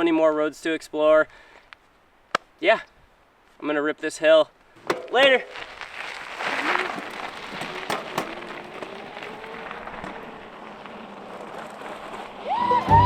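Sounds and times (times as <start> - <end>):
bike tyres on dirt: 3.4 - 13.0.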